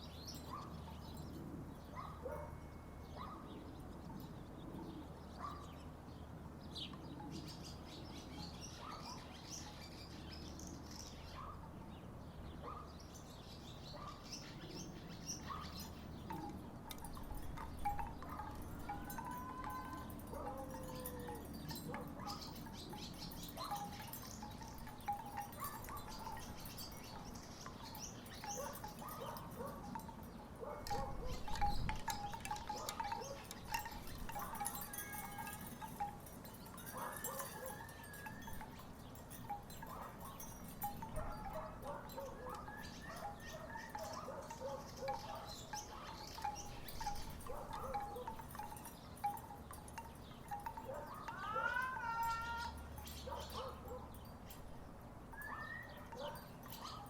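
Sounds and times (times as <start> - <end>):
wooden wind chimes clonking: 14.7 - 57.0.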